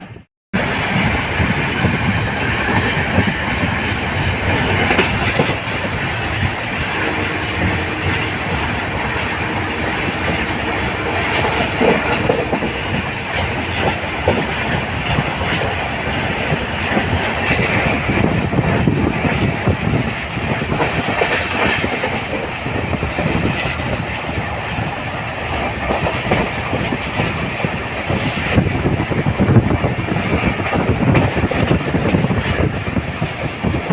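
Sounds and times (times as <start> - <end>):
train coaches rumbling and rattling: 0.0 - 33.9
wheels clattering over rails: 0.6 - 24.0.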